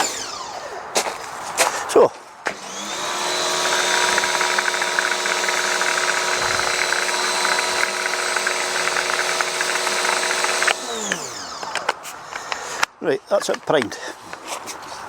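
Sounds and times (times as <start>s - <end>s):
pressure washer motor running: 2.5s - 11.7s.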